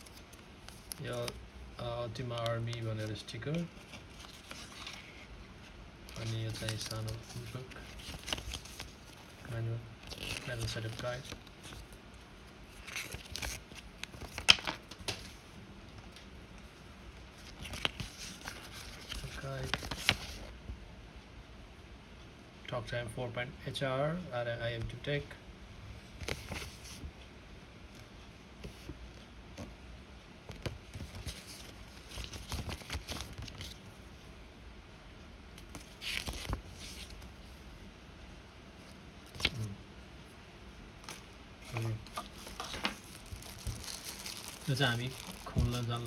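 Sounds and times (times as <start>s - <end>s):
paper rustling: 0.0s - 12.0s, 12.6s - 16.7s, 17.3s - 20.5s, 26.2s - 27.1s, 30.5s - 33.9s, 35.6s - 37.6s, 41.0s - 46.0s.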